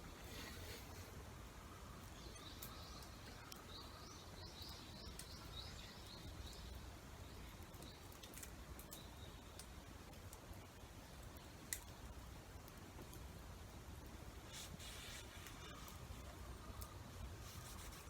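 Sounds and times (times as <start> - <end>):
faint bird song: 0.0 - 18.0
faint sharp clicks: 4.6 - 5.5, 7.6 - 10.4, 11.2 - 12.0.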